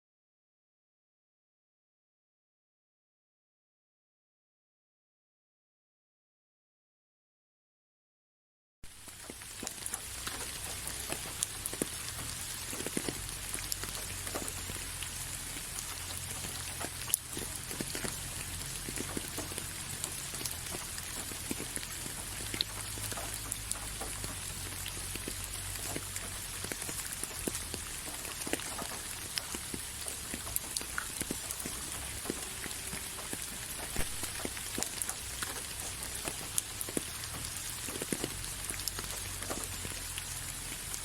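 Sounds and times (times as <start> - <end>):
raindrops striking a surface: 8.8 - 41.0
rain hissing: 8.9 - 41.0.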